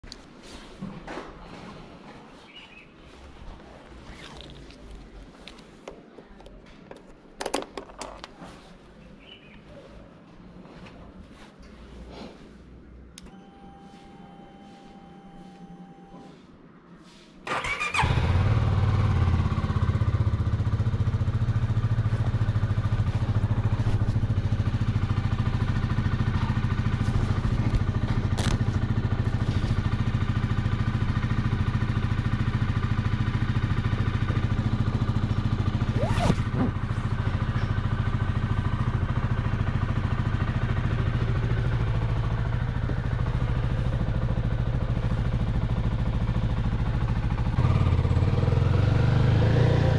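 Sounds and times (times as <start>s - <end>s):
motorcycle engine starting and idling: 17.5s - 49.9s.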